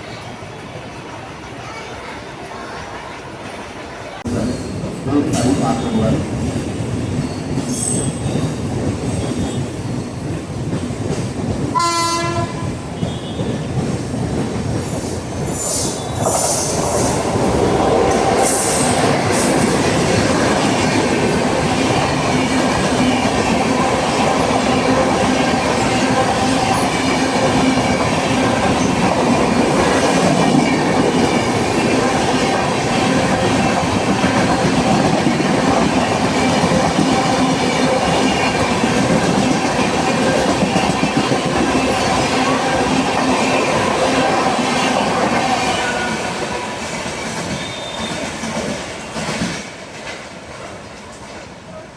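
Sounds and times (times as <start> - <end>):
train wheels running on rails: 0.0 - 51.9
locomotive horn blast: 11.8 - 13.4.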